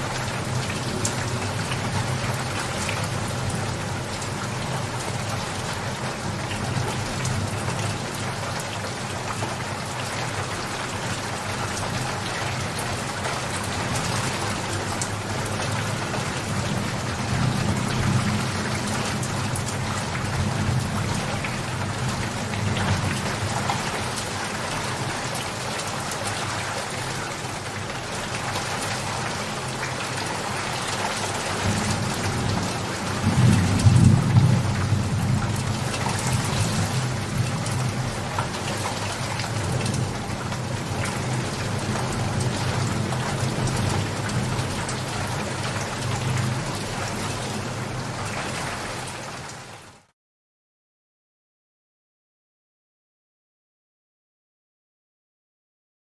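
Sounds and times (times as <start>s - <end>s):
dense rainfall pattering: 0.0s - 50.1s
thunder rumbling: 31.6s - 38.3s.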